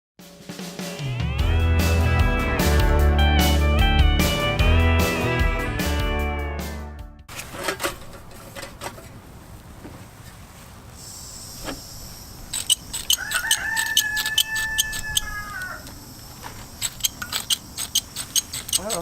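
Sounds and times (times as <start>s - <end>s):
sharp clicks: 12.4s - 19.0s
rooster crowing: 13.0s - 16.0s.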